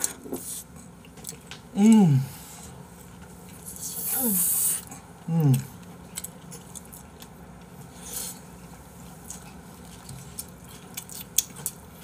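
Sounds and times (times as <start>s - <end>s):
quiet chewing: 0.0s - 12.0s.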